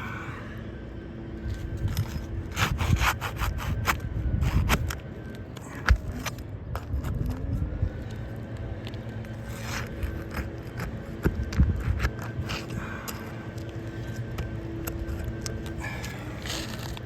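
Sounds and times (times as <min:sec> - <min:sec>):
shingles scraping and clicking: 0:08.8 - 0:17.0.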